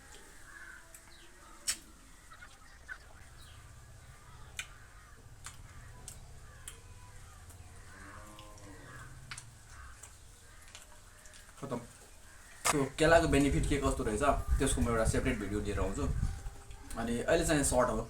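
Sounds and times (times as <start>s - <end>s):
distant fowl calling: 0.0s - 13.2s
mouth clicks: 1.6s - 1.9s
person chewing: 5.4s - 6.8s.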